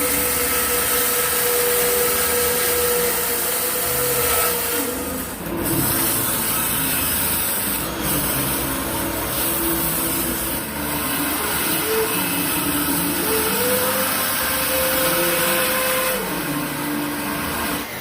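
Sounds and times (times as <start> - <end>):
woodworking power tool humming: 0.0 - 18.0.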